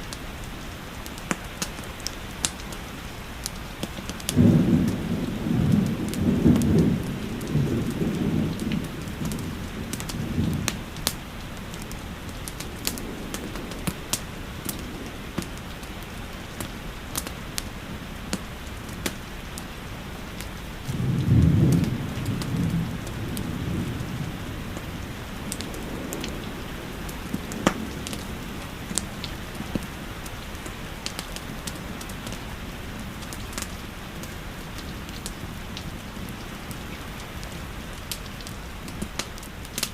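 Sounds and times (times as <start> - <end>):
steady rain: 0.0 - 39.9
thunder rolling: 4.3 - 16.7, 20.8 - 30.3.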